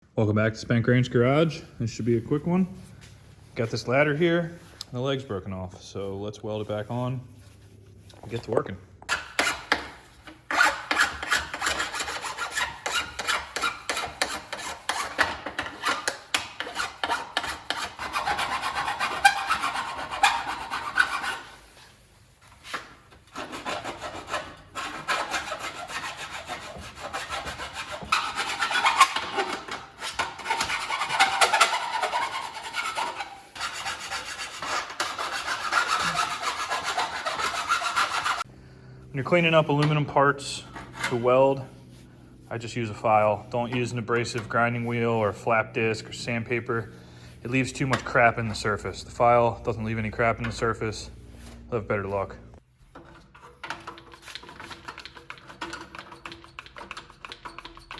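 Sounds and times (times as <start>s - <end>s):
file scraping aluminum: 8.3s - 38.5s, 40.6s - 45.5s, 52.8s - 57.9s.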